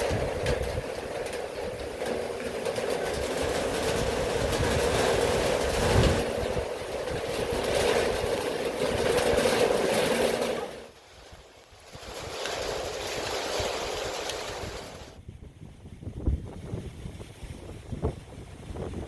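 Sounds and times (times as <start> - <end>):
strong wind and rain: 0.0 - 19.0
wind rumbling on microphone: 0.0 - 19.0.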